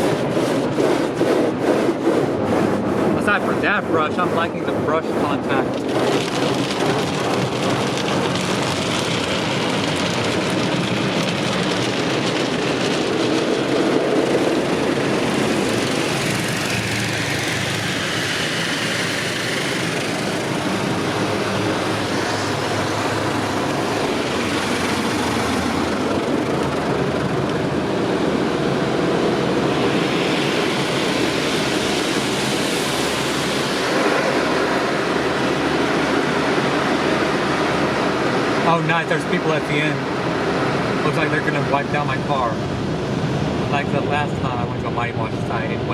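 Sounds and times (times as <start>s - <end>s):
car wash brushes on car body: 0.0s - 28.2s.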